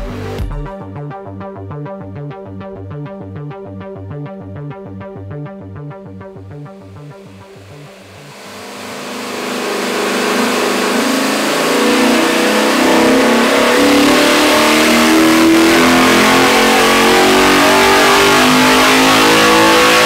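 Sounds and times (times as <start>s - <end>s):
engine running hard on dyno: 6.6s - 20.0s.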